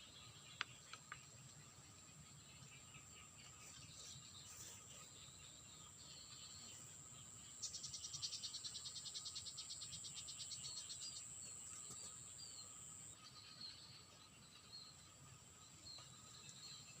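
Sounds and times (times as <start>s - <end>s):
rapid insect trill: 5.4s - 13.8s.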